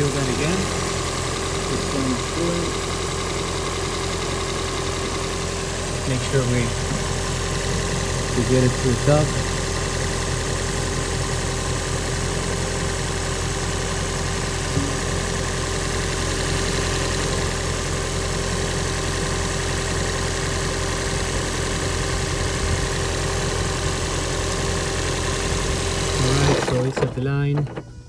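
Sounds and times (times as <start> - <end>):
car engine idling hum: 0.0 - 28.0
short knock: 14.7 - 15.3.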